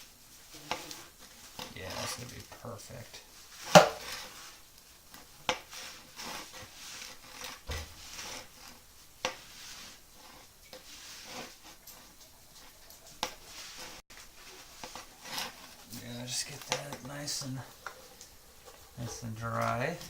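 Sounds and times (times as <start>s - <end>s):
cloth rubbing and rustling: 0.0s - 16.3s
sharp knocks: 3.8s - 4.1s.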